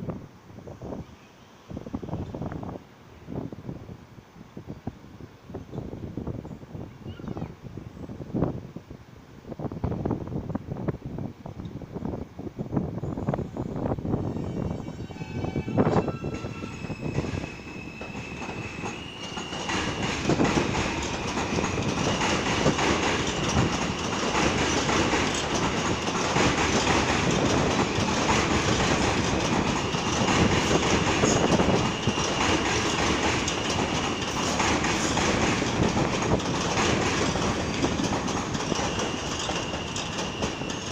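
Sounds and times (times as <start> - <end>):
high-pitched wheel squeal: 14.2 - 20.4, 38.8 - 40.9
train wheels clacking over joints: 16.3 - 40.9.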